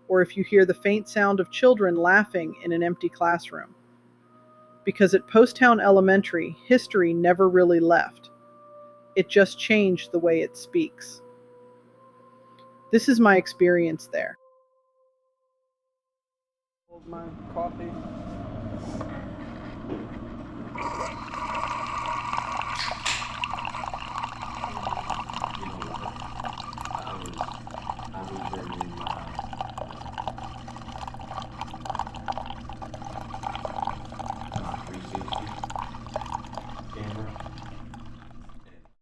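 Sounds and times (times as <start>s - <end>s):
low hum: 16.9s - 38.9s
coffee trickling into cup: 20.7s - 38.9s.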